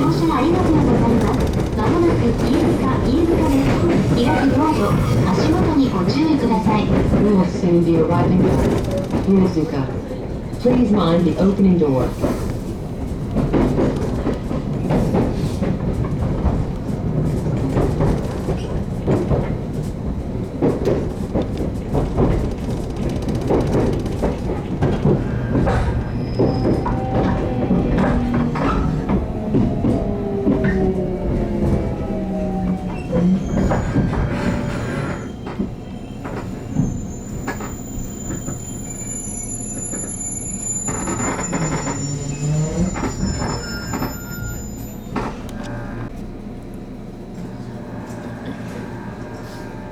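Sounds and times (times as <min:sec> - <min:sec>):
wheel clatter over rail joints: 0:00.0 - 0:39.1, 0:39.9 - 0:46.1
train rumble: 0:00.0 - 0:49.9
high wheel squealing: 0:22.6 - 0:46.1.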